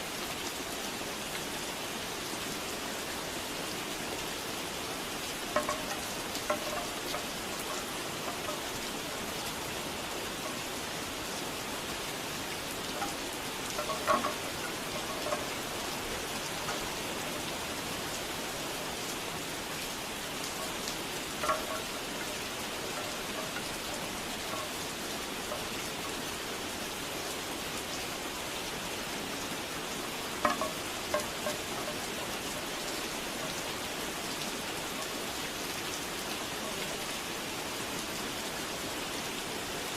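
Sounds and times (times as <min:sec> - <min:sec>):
steady rain falling: 0:00.0 - 0:39.9
bamboo wind chimes knocking: 0:05.5 - 0:19.0, 0:20.2 - 0:26.2, 0:30.4 - 0:33.7.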